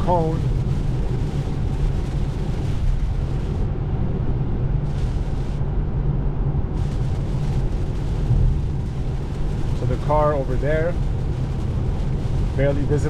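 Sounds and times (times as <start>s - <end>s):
tyre and road noise: 0.0s - 13.0s.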